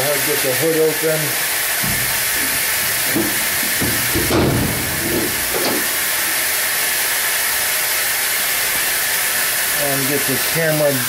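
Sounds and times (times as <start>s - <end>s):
steady hiss: 0.0s - 11.0s
hood latch clunk: 1.8s - 6.0s.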